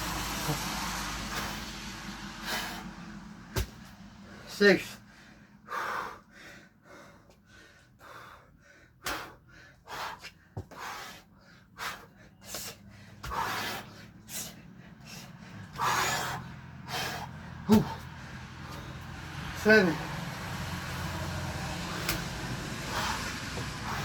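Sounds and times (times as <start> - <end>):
man breathing hard and gasping: 0.4 - 24.0.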